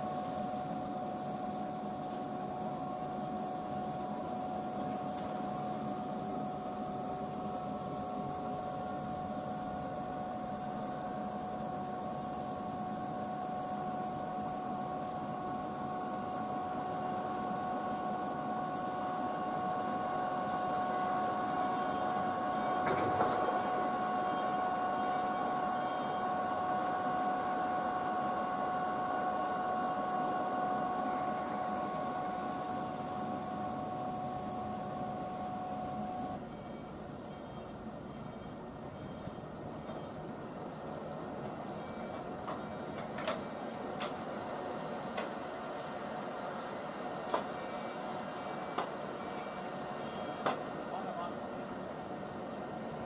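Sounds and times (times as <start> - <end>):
electric train motor whine: 0.0 - 53.0.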